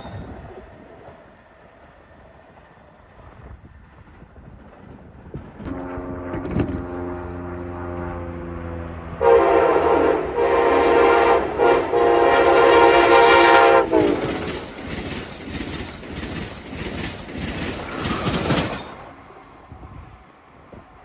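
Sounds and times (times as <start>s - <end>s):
train wheels rumbling and clattering: 0.0s - 6.9s, 11.6s - 21.0s
locomotive horn blasts: 5.7s - 14.6s.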